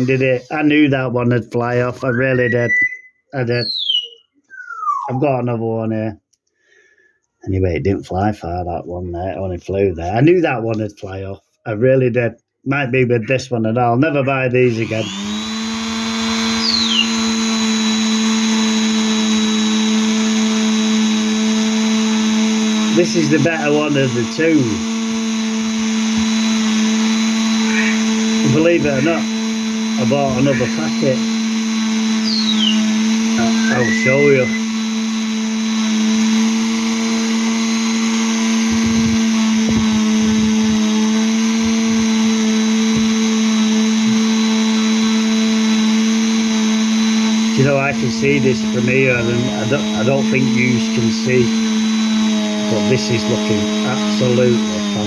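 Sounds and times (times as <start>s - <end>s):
electric polisher motor humming: 0.0s - 0.6s, 14.6s - 55.0s.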